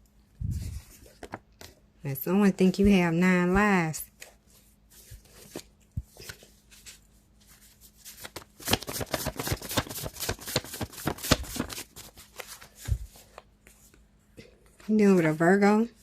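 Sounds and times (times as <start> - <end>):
deck of cards being shuffled: 4.1 - 13.4.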